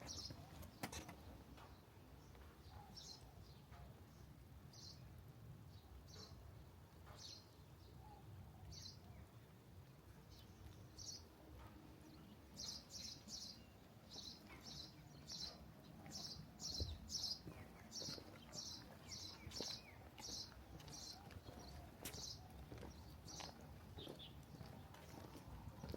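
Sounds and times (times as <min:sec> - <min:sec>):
small bird chirping: 0:12.1 - 0:25.9.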